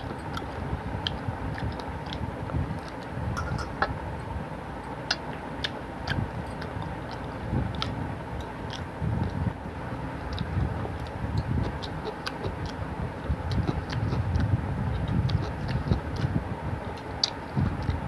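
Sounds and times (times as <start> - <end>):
person chewing food: 0.0 - 4.0, 4.8 - 9.6, 10.2 - 18.0
wet mouth clicks: 0.2 - 2.2, 5.0 - 9.4, 16.9 - 18.0.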